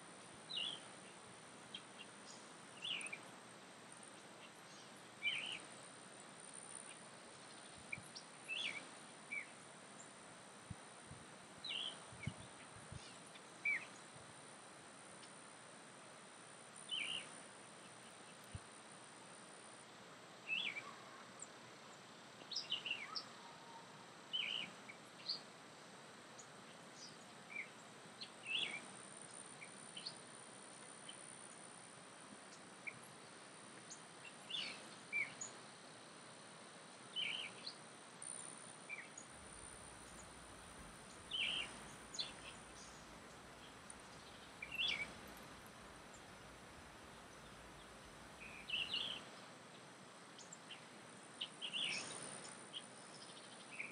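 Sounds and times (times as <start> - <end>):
faint steady hiss: 0.0 - 53.9
birds chirping: 37.2 - 49.4.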